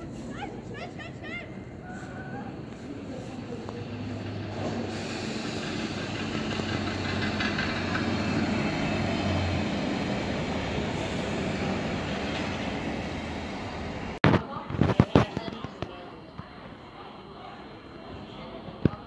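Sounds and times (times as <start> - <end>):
diesel train engine drone: 0.0 - 14.2
wheels rumbling on rail: 0.0 - 15.9.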